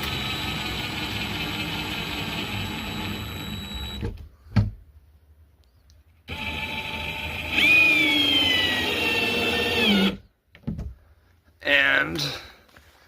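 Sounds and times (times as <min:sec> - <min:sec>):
power drill driving screws: 0:00.0 - 0:04.1, 0:06.3 - 0:10.3.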